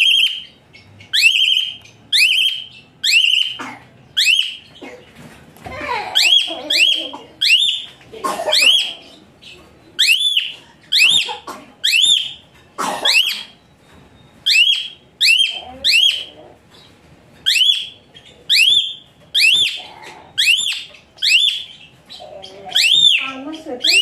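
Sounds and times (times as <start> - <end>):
bird calling shrill notes: 0.0 - 3.6, 10.0 - 12.4, 13.0 - 16.3, 17.4 - 21.9, 22.7 - 24.0.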